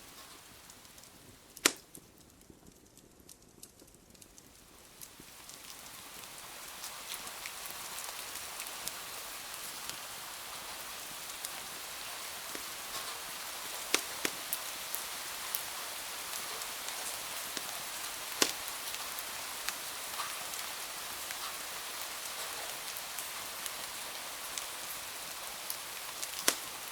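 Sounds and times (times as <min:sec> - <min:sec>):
rain hiss: 0:00.0 - 0:02.2, 0:04.0 - 0:26.9
sharp pops and clicks: 0:01.0 - 0:05.1, 0:12.5 - 0:13.1, 0:13.8 - 0:14.6, 0:16.9 - 0:19.0, 0:26.2 - 0:26.9.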